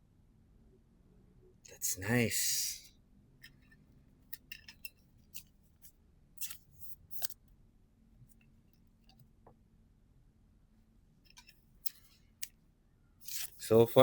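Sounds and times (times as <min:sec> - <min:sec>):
trading cards clicking and snapping: 0:06.4 - 0:07.4.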